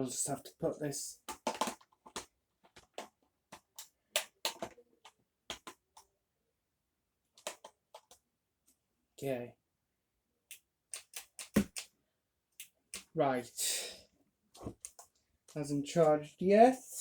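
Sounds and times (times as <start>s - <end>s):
plastic parts clicking: 1.3s - 6.0s, 7.4s - 8.2s.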